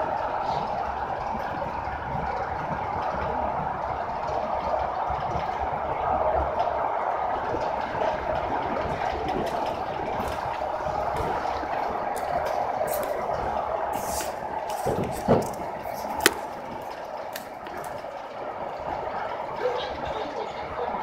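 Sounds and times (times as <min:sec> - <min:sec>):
electric train running rumble: 0:00.0 - 0:21.0.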